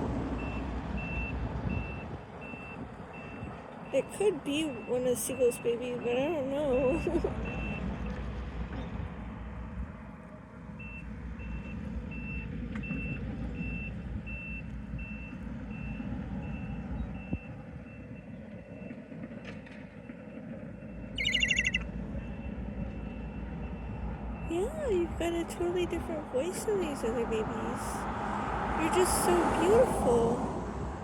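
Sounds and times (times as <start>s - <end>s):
low engine rumble: 0.0s - 31.0s
reversing alarm beeps: 0.4s - 4.0s, 4.7s - 7.9s, 10.8s - 19.0s, 20.0s - 24.5s
young gull calling: 21.2s - 21.9s.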